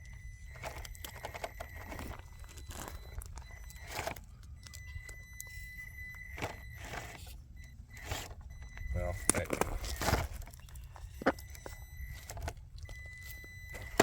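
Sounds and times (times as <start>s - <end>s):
toy car scraping over rock: 8.0s - 8.4s.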